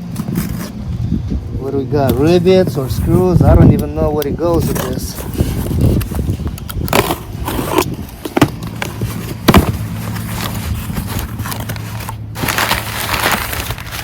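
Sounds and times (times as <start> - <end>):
steady low hum: 0.0 - 14.0
packaging rustling and clacking: 3.7 - 14.0.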